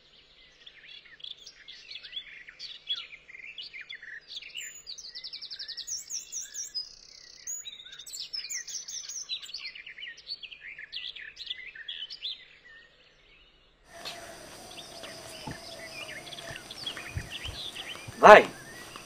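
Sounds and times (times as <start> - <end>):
hissy outdoor background: 13.9 - 19.0
small birds chirping: 13.9 - 19.0.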